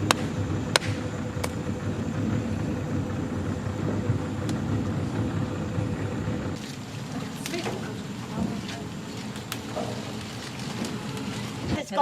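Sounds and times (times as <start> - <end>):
boat motor droning: 0.0 - 12.0.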